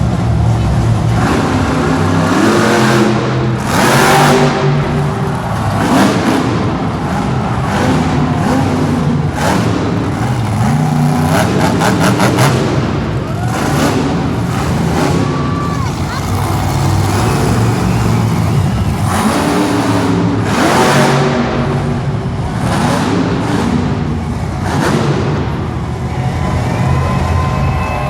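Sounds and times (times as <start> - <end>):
monster truck engine revving: 0.0 - 28.0.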